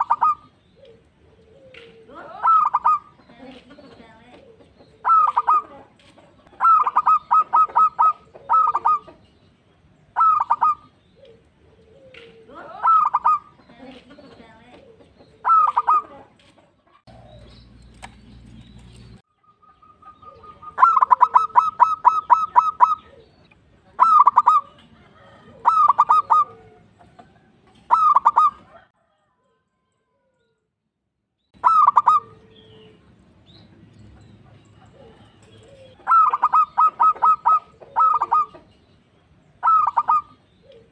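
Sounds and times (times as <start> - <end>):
dove cooing: 0.0 - 9.3, 10.1 - 17.7, 19.4 - 29.2, 31.6 - 33.2, 34.2 - 38.8, 39.4 - 40.9.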